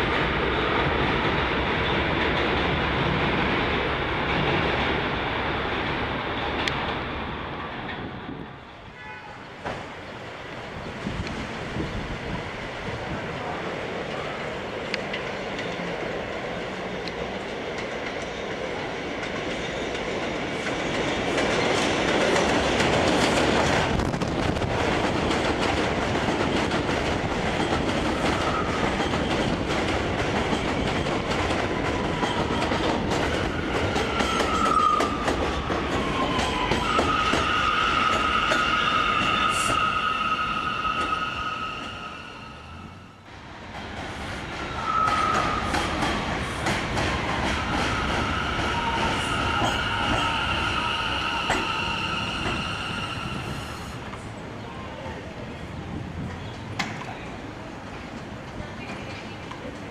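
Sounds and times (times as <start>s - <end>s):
subway wheels clattering on track: 0.0s - 59.9s
high wheel squeal: 36.0s - 43.2s, 44.7s - 45.9s, 47.9s - 54.0s.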